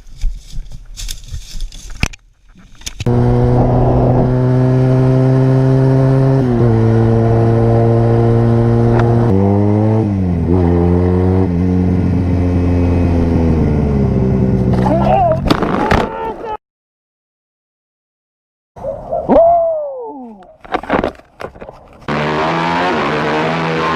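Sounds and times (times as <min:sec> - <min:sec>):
motorcycle engine running: 0:03.1 - 0:15.0.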